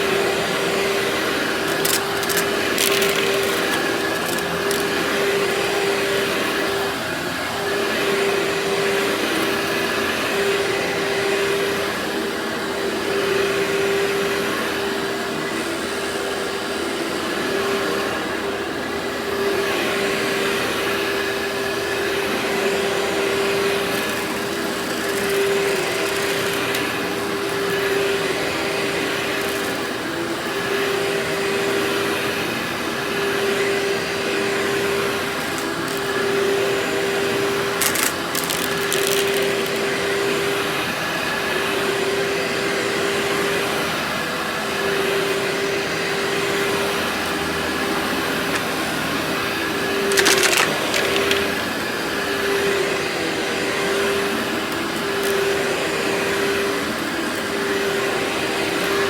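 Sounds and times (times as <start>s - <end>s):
vacuum cleaner motor whine: 0.0s - 59.0s
grit crackling in vacuum: 1.4s - 6.3s, 23.6s - 30.0s, 35.1s - 40.2s, 49.9s - 51.7s.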